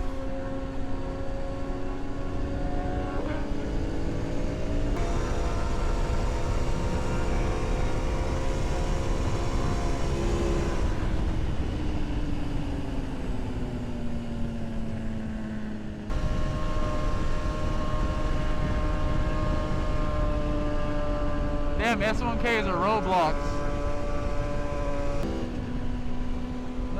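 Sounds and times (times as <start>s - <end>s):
motorcycle engine running: 0.1s - 22.4s
wind rushing over microphone: 16.1s - 26.9s.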